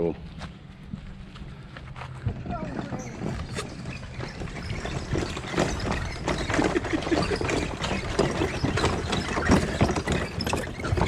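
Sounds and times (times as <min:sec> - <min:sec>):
footsteps on forest trail: 0:00.2 - 0:03.8.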